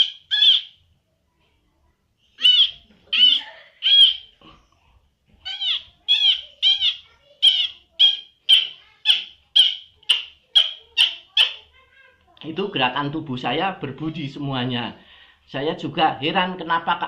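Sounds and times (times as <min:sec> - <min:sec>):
high squeaky calls: 0:00.0 - 0:00.8, 0:02.3 - 0:04.4, 0:05.4 - 0:11.7.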